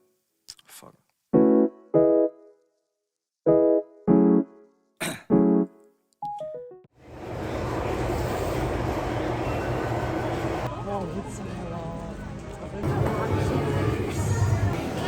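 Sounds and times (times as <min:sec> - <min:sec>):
electric piano chords: 0:01.4 - 0:02.5, 0:03.5 - 0:04.6
steady background noise: 0:07.0 - 0:15.0.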